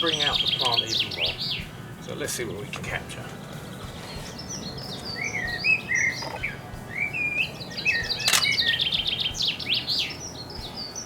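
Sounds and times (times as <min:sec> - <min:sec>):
songbirds chirping and trilling: 0:00.0 - 0:11.0
camera shutter click: 0:08.2 - 0:08.6.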